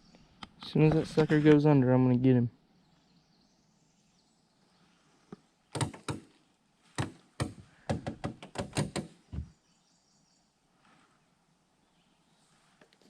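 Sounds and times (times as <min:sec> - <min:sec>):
sharp knocks and taps: 0:05.3 - 0:06.4, 0:07.0 - 0:09.5.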